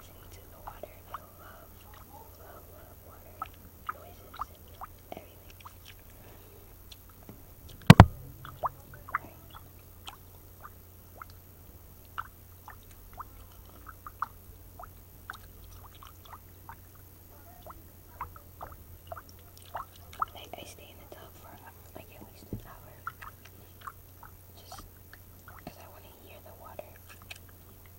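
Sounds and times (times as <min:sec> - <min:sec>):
gum chewing mouth clicks: 0:00.1 - 0:06.2, 0:26.8 - 0:27.9
loud thump: 0:07.3 - 0:08.8.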